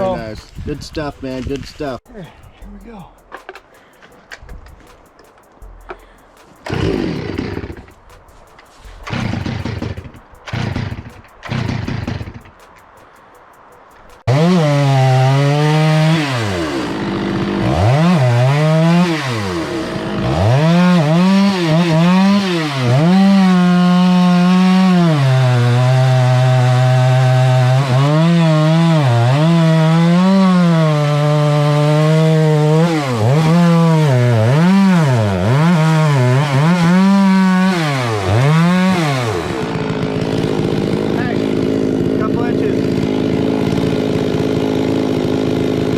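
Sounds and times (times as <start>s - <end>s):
chainsaw revving: 6.6s - 8.0s, 9.0s - 12.6s, 14.2s - 45.9s.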